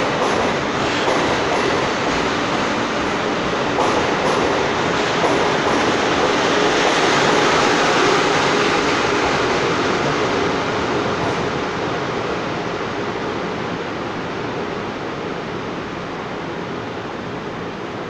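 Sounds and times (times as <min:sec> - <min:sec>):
wheels clacking over rail joints: 0:00.0 - 0:11.6
train cars rumbling past: 0:00.0 - 0:15.6.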